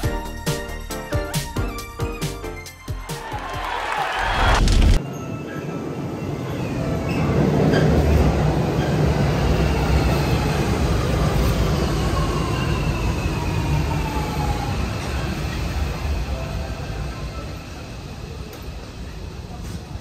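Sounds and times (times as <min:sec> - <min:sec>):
train rumbling on track: 0:05.0 - 0:20.0.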